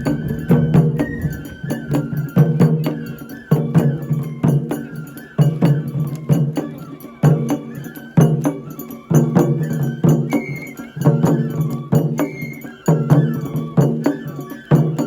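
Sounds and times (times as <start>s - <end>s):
sharp drum strikes: 0.0s - 2.6s
bamboo flute melody: 0.0s - 15.0s.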